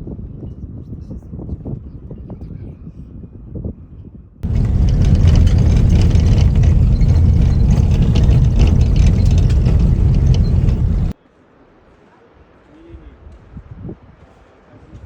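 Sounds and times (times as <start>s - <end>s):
loud vehicle rumble with hiss: 4.4s - 11.2s.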